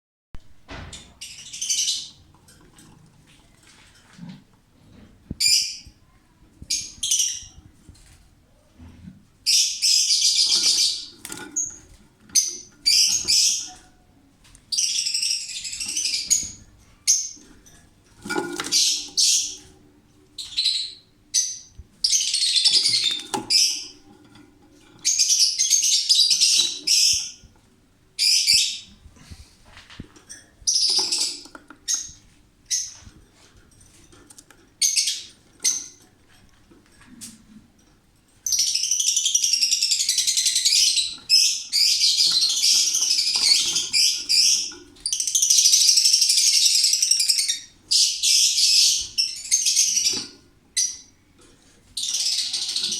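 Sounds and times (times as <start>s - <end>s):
lovebirds screeching: 9.5s - 13.9s, 18.3s - 19.7s, 20.4s - 24.1s, 24.8s - 27.5s, 38.5s - 51.1s, 52.0s - 52.9s.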